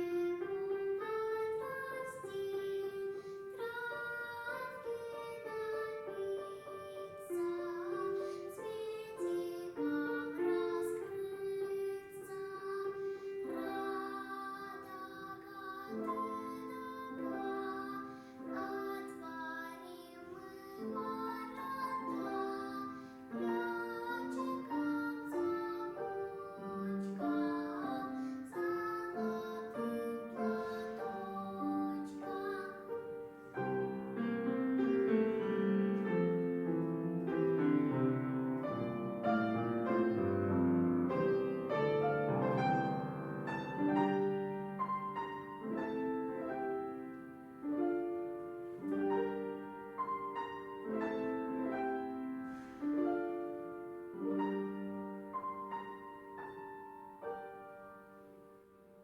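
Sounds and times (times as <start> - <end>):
child singing a folk song: 0.0 - 36.2
piano accompaniment: 0.0 - 59.0.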